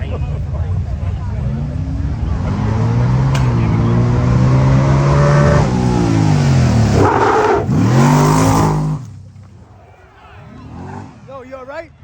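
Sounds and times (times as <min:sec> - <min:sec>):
engine revving high: 0:01.4 - 0:09.1.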